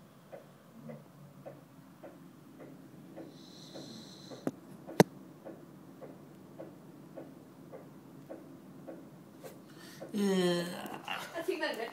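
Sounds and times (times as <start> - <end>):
soft regular ticking: 0.2 - 9.2
dog snoring softly: 3.2 - 4.5.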